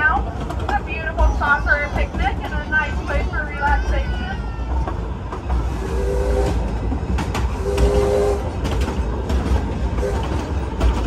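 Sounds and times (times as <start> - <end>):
miniature train rumbling: 0.0 - 11.0.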